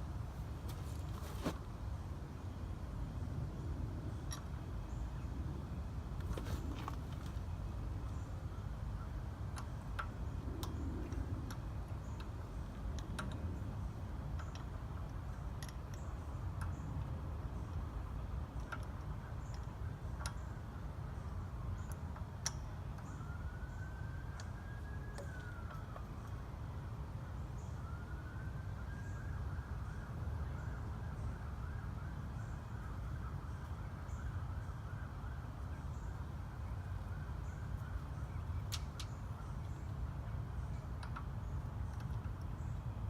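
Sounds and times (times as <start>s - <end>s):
emergency vehicle siren: 23.1s - 26.2s.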